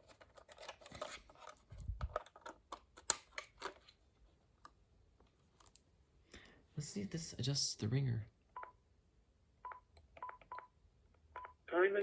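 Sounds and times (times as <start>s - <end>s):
small plastic clicks and scrapes: 0.0s - 4.0s.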